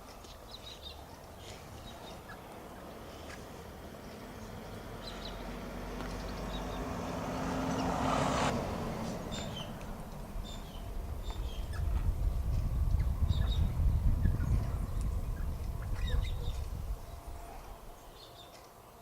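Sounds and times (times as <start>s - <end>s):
small birds chirping: 0.0s - 19.0s
vehicle passing: 2.1s - 18.0s
wind rumble on microphone: 5.5s - 18.1s.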